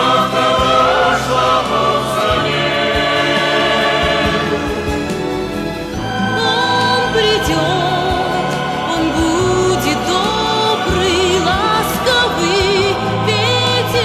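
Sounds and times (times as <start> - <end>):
choir singing held chords: 0.0 - 14.0
orchestral accompaniment: 0.0 - 14.0
wavering voice: 6.0 - 14.0.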